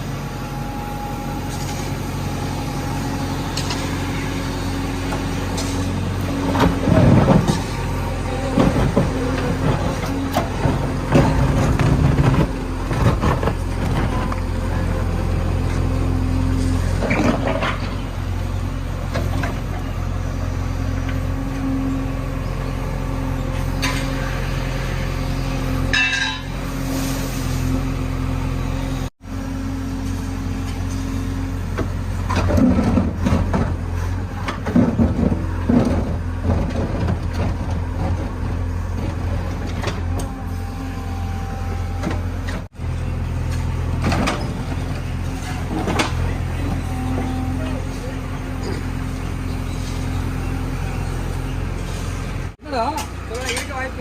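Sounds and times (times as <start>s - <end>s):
diesel engine running: 0.0s - 54.0s
bucket scraping and clanking: 5.0s - 14.8s, 16.5s - 18.1s, 25.9s - 27.6s, 30.7s - 40.6s, 43.5s - 49.1s.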